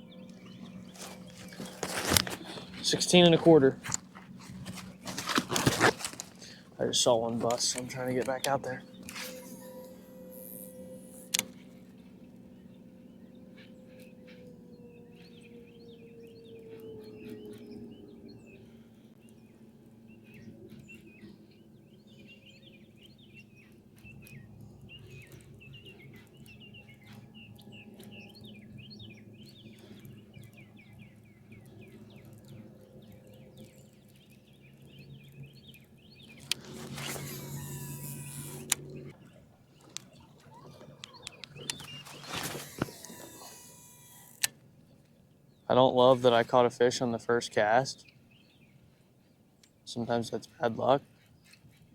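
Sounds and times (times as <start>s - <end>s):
low steady hum: 0.0s - 51.1s
songbirds chirping and twittering: 0.0s - 51.9s
small clicks: 29.7s - 45.2s.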